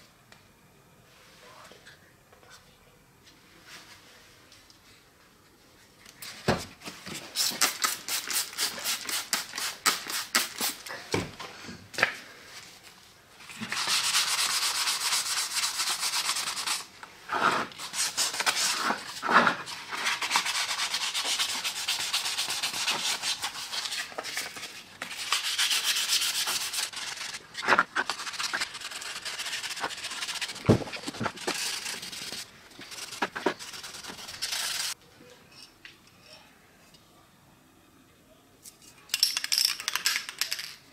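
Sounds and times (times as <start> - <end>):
sandpaper rubbing plastic: 13.7 - 35.0.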